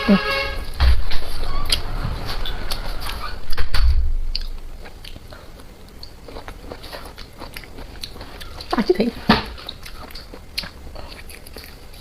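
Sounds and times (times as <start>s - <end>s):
dull thump: 0.7s - 1.4s
biting and chewing: 1.0s - 12.0s.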